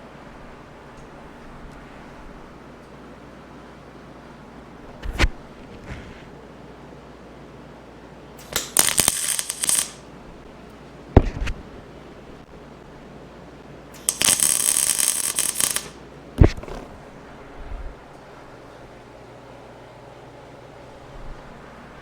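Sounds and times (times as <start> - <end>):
arc welder crackling: 8.4 - 10.1, 13.9 - 17.2.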